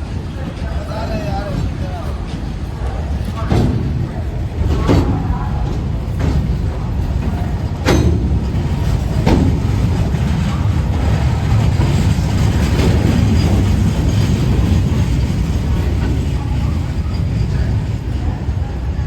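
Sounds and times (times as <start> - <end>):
train rumbling along track: 0.0 - 19.0
sharp clanks: 4.7 - 14.7.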